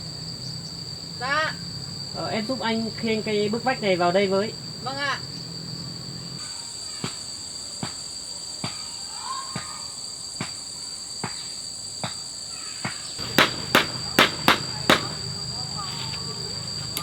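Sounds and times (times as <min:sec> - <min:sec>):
insect trill: 0:00.0 - 0:17.0
sharp hammer blows: 0:13.2 - 0:16.3.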